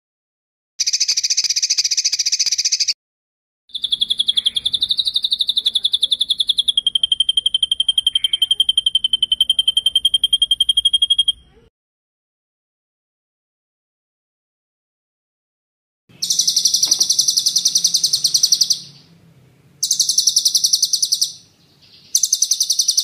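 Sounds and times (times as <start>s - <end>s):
songbird trilling: 0.8s - 2.9s, 3.7s - 11.6s, 16.1s - 19.2s, 19.8s - 23.0s.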